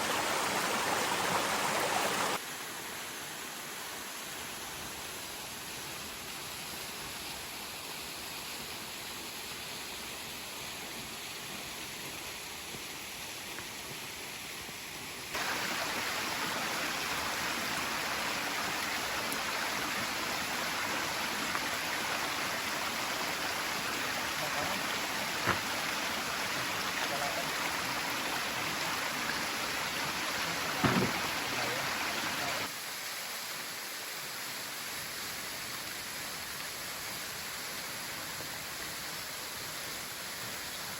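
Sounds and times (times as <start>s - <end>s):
falling water rushing: 0.0s - 5.2s, 5.9s - 40.9s
short knock: 30.8s - 31.2s.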